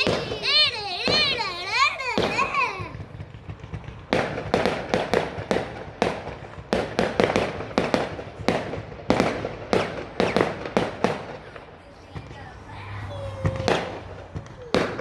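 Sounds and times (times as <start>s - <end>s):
fireworks banging: 0.0s - 15.0s.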